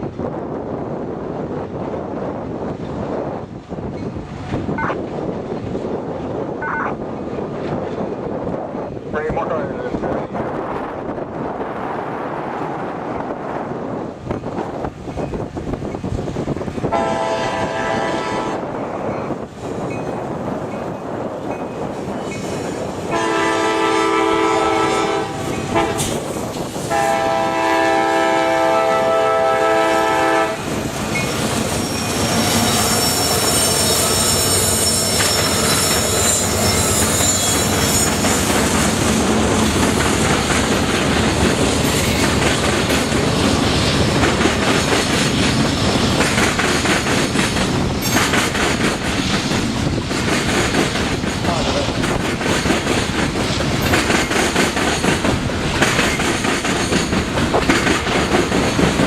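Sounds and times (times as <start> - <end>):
locomotive horn blasts: 16.9 - 18.6, 23.1 - 26.0, 26.9 - 30.6
train wheels clattering: 25.4 - 27.7, 30.1 - 59.0
high wheel squeal: 31.1 - 38.5.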